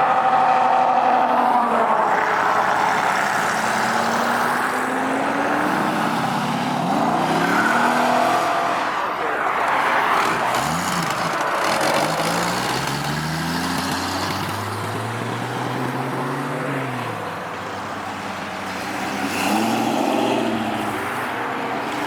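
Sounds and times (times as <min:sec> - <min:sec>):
car engines accelerating: 0:00.0 - 0:22.0
engine revving up: 0:09.7 - 0:16.9.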